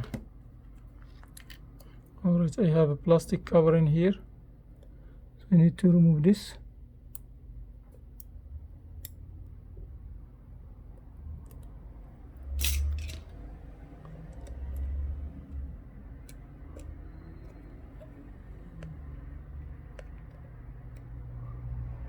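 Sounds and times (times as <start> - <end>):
metal tweezers clicking: 9.0 - 9.2.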